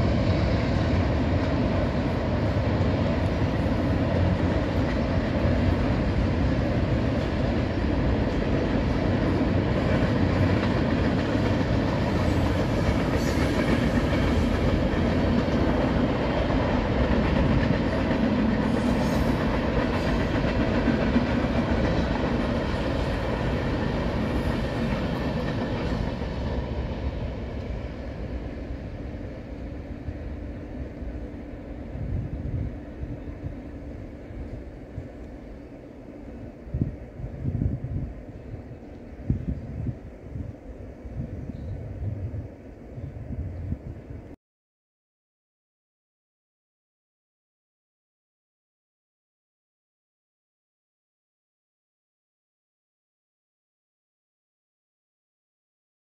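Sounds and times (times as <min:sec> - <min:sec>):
freight train rumbling past: 0:00.0 - 0:44.4.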